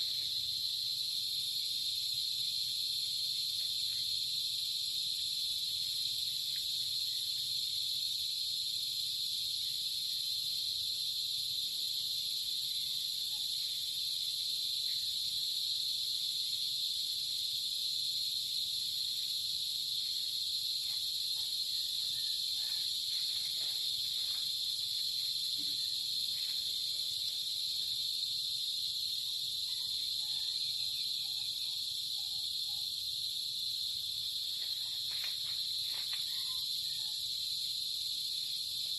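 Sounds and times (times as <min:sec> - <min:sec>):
insect chorus trilling: 0:00.0 - 0:38.9.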